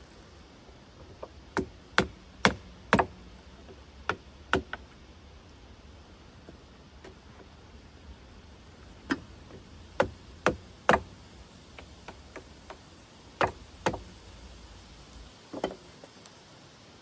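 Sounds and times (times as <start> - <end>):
hand tool striking metal: 13.4 - 14.2.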